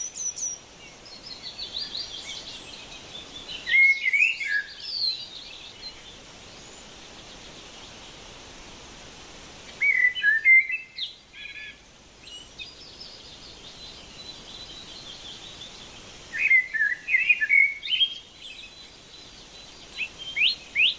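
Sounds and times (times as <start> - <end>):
bird chirping: 0.0 - 8.2, 9.7 - 20.9
background hiss: 0.0 - 20.9.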